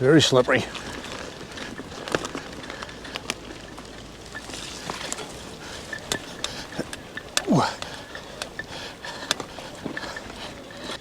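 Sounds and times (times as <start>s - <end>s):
bike tyres crackling on dirt: 0.0s - 11.0s
bike clicks and knocks: 0.6s - 11.0s.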